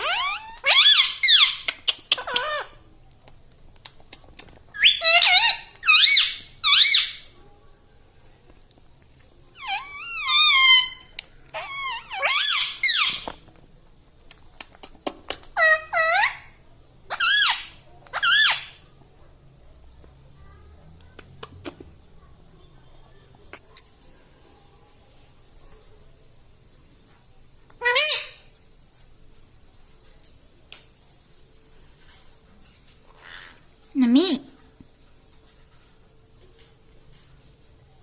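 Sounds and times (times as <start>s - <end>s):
parakeet squeaky whistled calls: 0.0s - 2.7s, 4.8s - 7.3s, 9.6s - 13.3s, 17.1s - 18.8s.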